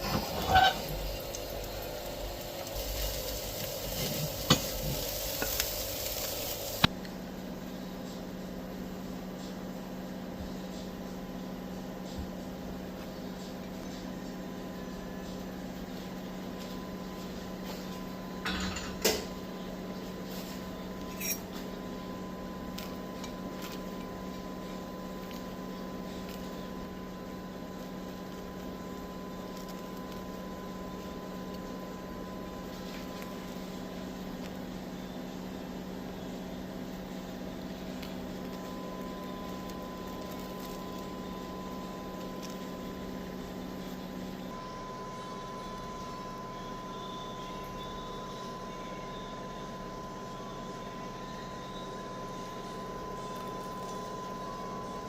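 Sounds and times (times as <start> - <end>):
crockery scrape: 0.0 - 1.1, 21.1 - 21.5
steady low hum: 0.0 - 55.0
ringing clink of cutlery: 21.1 - 21.5
thin high tone: 21.1 - 21.6.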